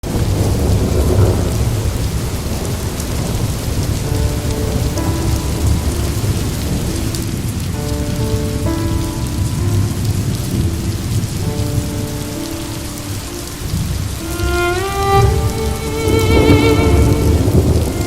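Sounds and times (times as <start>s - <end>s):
low thunder rumble: 0.0s - 18.0s
steady rain: 0.0s - 18.0s
slow flute melody: 4.1s - 18.0s.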